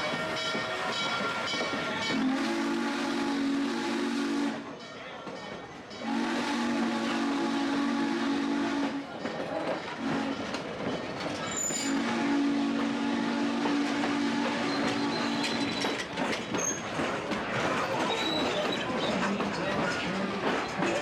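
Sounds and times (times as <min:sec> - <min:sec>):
steam locomotive whistle: 0:00.0 - 0:04.8, 0:06.0 - 0:09.2, 0:10.0 - 0:10.5, 0:11.6 - 0:16.0
train noise: 0:00.0 - 0:21.0.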